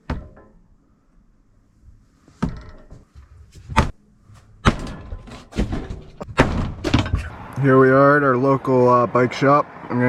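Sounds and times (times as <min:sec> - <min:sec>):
sharp knocks and thuds: 0:00.0 - 0:00.6, 0:02.3 - 0:07.3.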